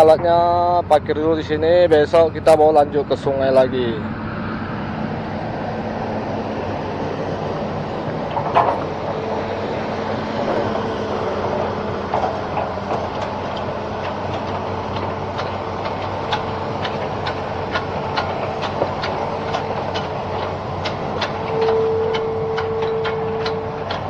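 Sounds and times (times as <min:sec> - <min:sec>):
diesel engine idling: 0:00.0 - 0:24.0
sharp ticks: 0:12.2 - 0:24.0.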